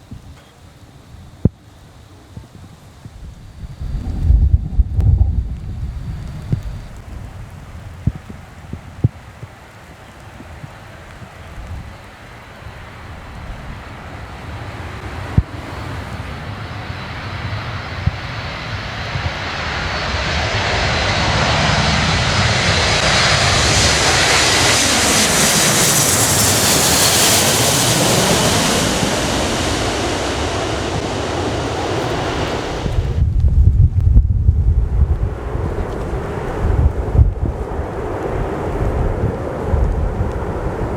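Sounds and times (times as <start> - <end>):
wind buffeting microphone: 1.0 - 40.9
jet aircraft flying past: 12.3 - 40.9.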